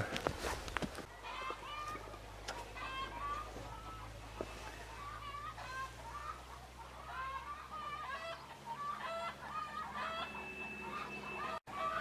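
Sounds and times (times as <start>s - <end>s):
chickens clucking: 1.0s - 12.0s
rooster crowing: 7.1s - 12.0s.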